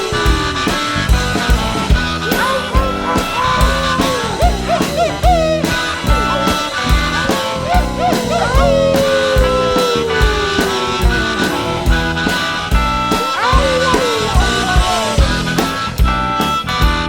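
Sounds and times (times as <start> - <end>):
lead instrument bending notes: 0.0 - 15.8
blues band playing: 0.0 - 17.0
steady drum beat: 0.0 - 17.0.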